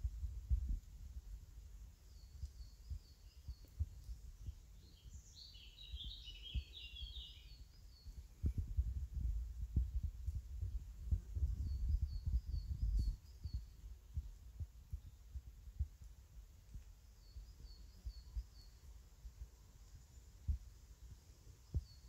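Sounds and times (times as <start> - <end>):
birds chirping: 2.0 - 8.6.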